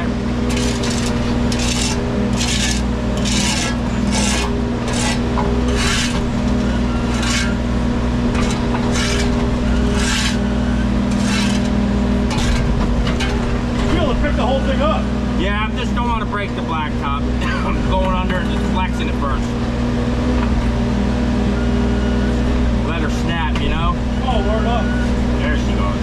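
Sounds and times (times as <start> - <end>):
bucket scraping asphalt: 0.0 - 15.0
excavator diesel engine running: 0.0 - 26.0.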